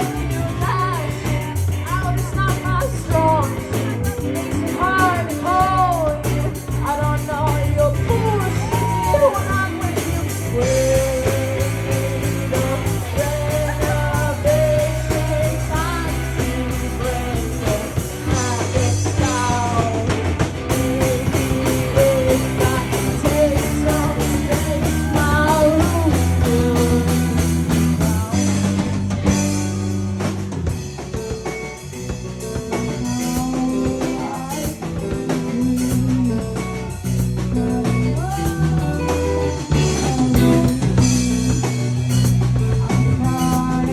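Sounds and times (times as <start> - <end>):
person singing: 0.0 - 29.0, 32.4 - 43.9
live rock band: 0.0 - 43.9.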